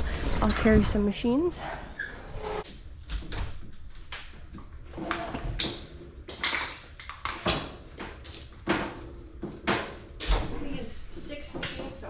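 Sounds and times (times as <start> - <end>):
metal units knocking and clanking: 2.8 - 12.0.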